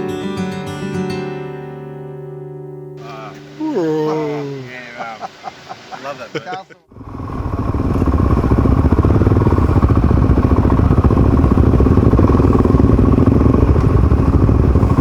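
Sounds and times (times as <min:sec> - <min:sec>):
motorcycle engine running: 0:06.9 - 0:15.0.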